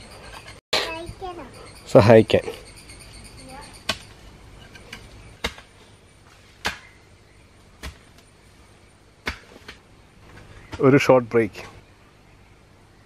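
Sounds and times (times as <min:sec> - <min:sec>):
faint outdoor background: 0:00.0 - 0:13.0
sharp single knocks: 0:03.9 - 0:04.1, 0:06.6 - 0:06.9.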